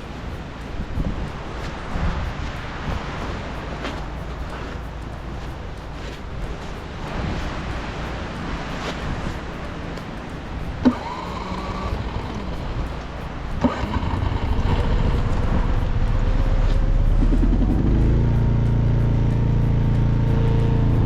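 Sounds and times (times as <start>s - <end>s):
car engine cranking and running: 10.8s - 21.0s.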